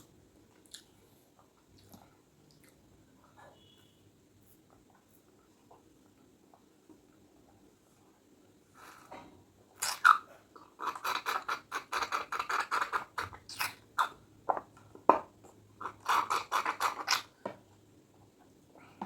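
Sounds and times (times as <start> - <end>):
chewing crunchy food: 0.5 - 2.9.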